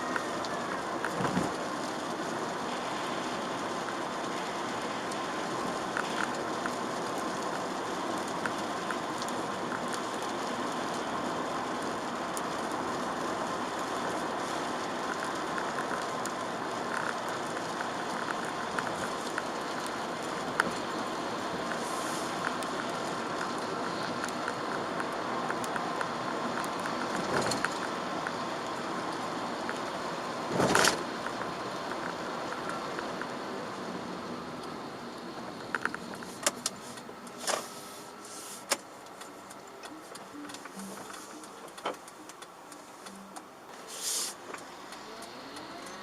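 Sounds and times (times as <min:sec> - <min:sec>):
rain and tyres on wet road: 0:00.0 - 0:46.0
raindrops tapping: 0:00.2 - 0:33.3.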